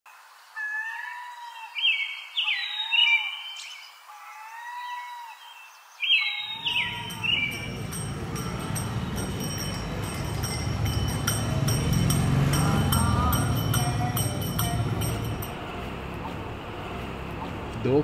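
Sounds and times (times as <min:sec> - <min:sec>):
birds whistling and chirping: 0:01.7 - 0:04.0, 0:05.4 - 0:08.0
street traffic rumble: 0:06.4 - 0:18.0.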